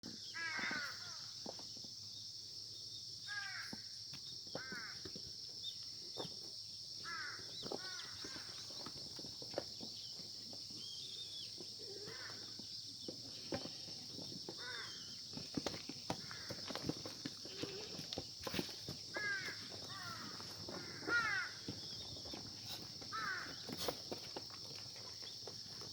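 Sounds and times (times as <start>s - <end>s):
high-pitched insect chorus: 0.0s - 25.9s
crows cawing: 0.3s - 1.3s, 3.3s - 3.8s, 4.6s - 5.1s, 7.0s - 8.6s, 11.9s - 12.6s, 14.6s - 15.1s, 16.1s - 16.8s, 19.1s - 21.8s, 23.1s - 23.7s.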